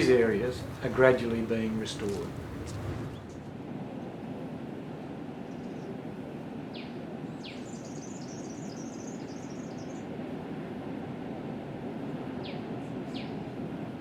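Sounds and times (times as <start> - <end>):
bird twittering: 0.0 - 3.4
ocean surf rumble: 0.0 - 4.4.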